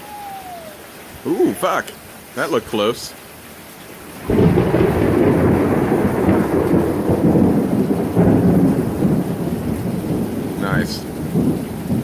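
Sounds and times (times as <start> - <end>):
rain falling: 0.0 - 12.0
thunder rumbling: 4.0 - 12.0.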